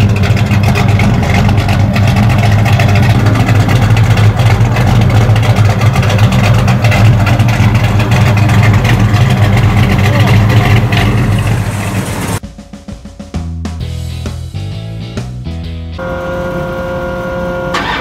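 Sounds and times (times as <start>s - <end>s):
vee eight engine idling: 0.0s - 12.4s, 16.0s - 18.0s.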